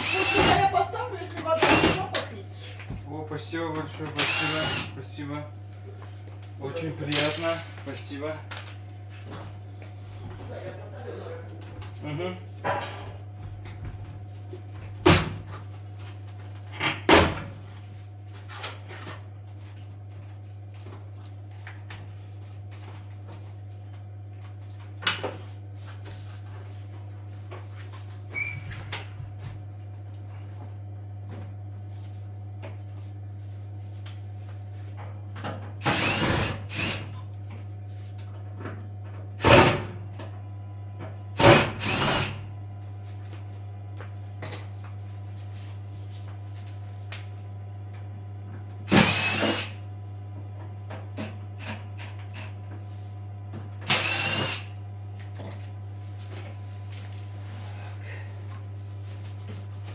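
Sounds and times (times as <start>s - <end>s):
power drill-driver running: 0.0s - 0.7s, 1.6s - 2.0s, 4.1s - 5.0s, 35.8s - 37.2s, 41.4s - 42.4s, 48.9s - 49.8s, 53.9s - 54.7s
steady low hum: 17.3s - 59.9s.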